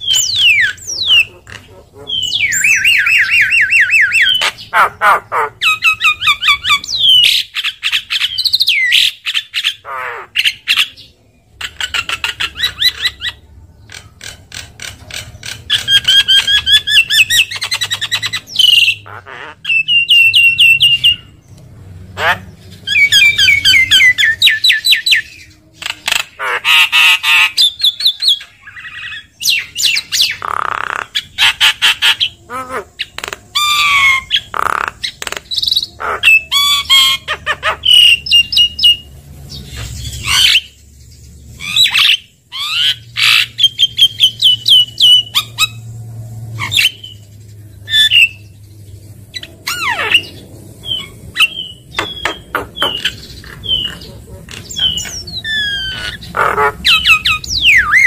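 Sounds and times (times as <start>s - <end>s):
bird harsh squawks: 0.0s - 21.3s, 22.2s - 39.0s, 41.6s - 45.8s, 49.3s - 58.0s
bird whistled notes: 2.2s - 4.4s.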